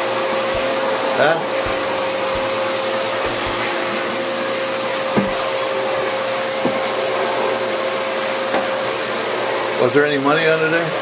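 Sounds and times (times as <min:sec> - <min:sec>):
vacuum cleaner running: 0:00.0 - 0:11.0
vacuum cleaner bumping and knocking: 0:01.6 - 0:04.2, 0:05.0 - 0:05.6, 0:06.5 - 0:07.0, 0:08.4 - 0:08.8.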